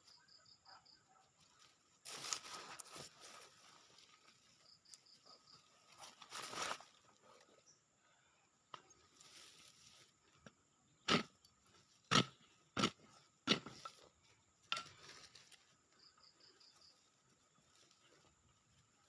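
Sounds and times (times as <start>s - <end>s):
digging tool chopping soil: 11.0s - 11.3s, 12.1s - 13.9s.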